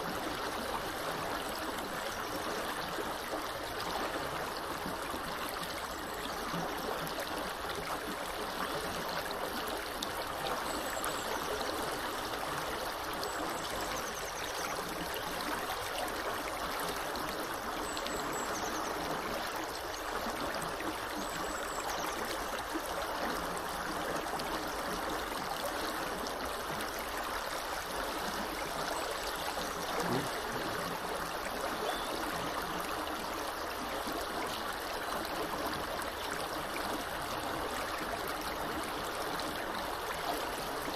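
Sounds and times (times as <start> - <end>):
river water rushing: 24.4 - 34.4
faint bird chirps: 31.7 - 32.3.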